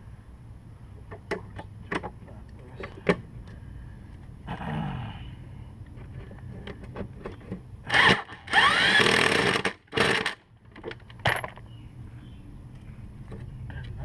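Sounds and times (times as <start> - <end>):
power drill running: 7.9 - 10.4.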